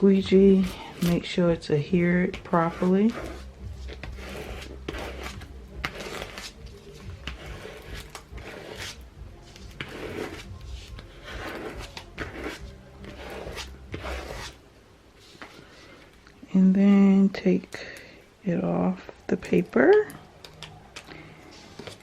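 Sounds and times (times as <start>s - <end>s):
squeegee scraping over tape: 0.1s - 14.6s, 20.5s - 22.0s.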